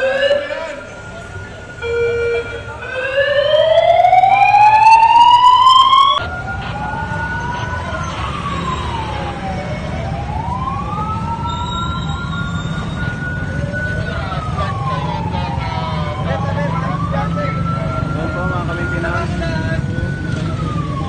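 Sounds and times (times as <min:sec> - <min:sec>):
loud siren rising: 0:00.0 - 0:21.0
siren wailing: 0:00.0 - 0:21.0.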